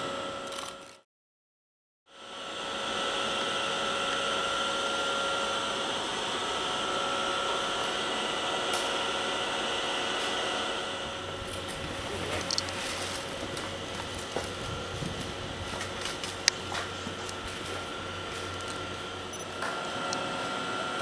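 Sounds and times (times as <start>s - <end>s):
machine whirring: 11.4s - 20.3s.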